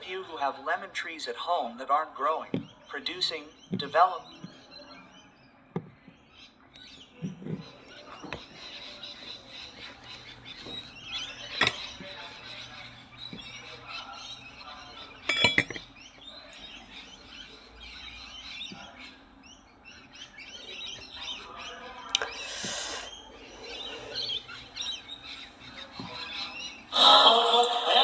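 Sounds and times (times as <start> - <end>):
small birds chirping: 1.3 - 27.0
brief hiss: 22.3 - 23.1.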